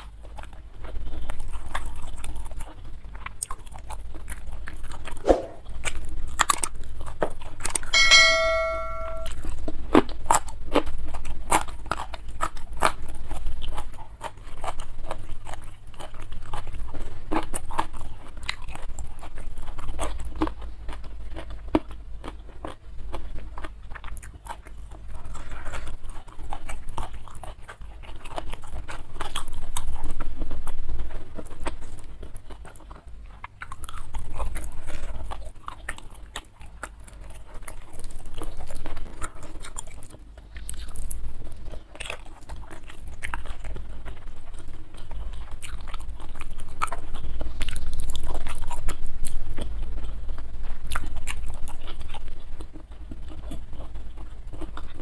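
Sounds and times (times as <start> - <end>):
person chewing crunchy food: 0.0 - 7.9, 9.4 - 55.0
short ringing tone: 8.0 - 9.3.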